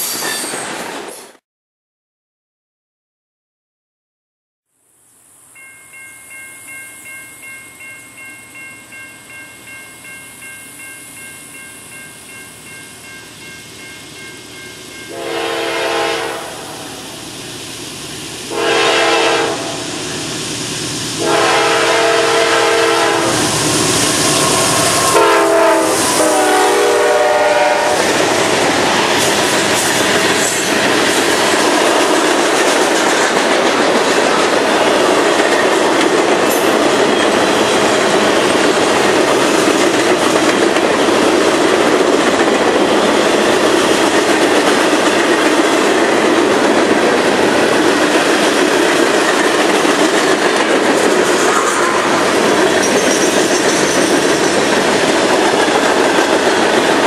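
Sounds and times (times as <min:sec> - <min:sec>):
locomotive horn blasts: 0:15.1 - 0:17.0, 0:18.5 - 0:19.9, 0:21.2 - 0:28.1
freight cars rumbling and clacking: 0:28.1 - 0:57.0.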